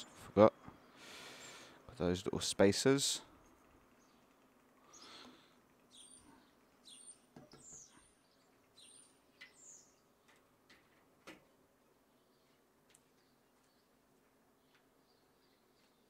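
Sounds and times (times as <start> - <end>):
faint bird chirps: 3.4 - 10.4.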